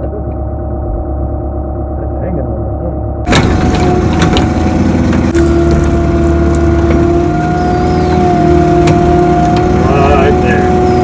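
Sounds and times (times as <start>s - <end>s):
diesel engine rumbling: 3.2s - 11.0s
hydraulic whine: 3.3s - 11.0s.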